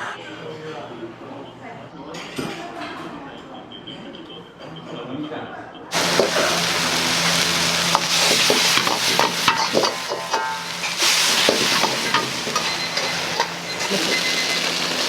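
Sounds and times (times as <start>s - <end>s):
food sizzling in hot oil: 5.9s - 15.0s
metal ladle scraping wok: 6.0s - 15.0s.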